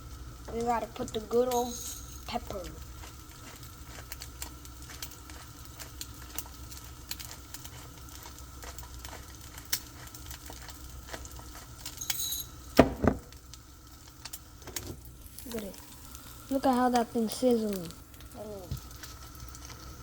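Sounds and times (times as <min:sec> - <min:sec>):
egg frying in oil: 0:00.0 - 0:20.0.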